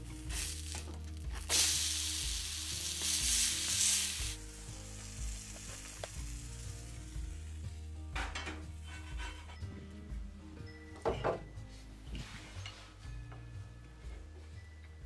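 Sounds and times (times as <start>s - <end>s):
pancake sizzling in a skillet: 0.0s - 7.7s.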